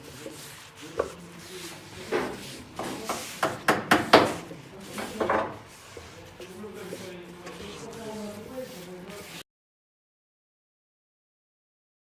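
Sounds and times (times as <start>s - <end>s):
sharp knocks and clatters: 2.1s - 5.6s.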